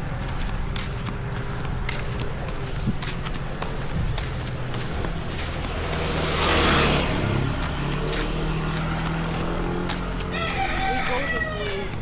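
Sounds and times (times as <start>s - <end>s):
rooster crowing: 9.9s - 12.0s.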